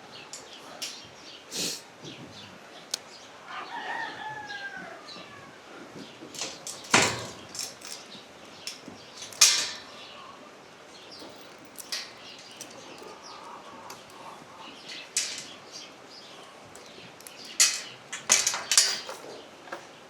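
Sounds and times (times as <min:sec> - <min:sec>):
sharp knocks and clatters: 0:06.2 - 0:08.0, 0:17.3 - 0:19.9.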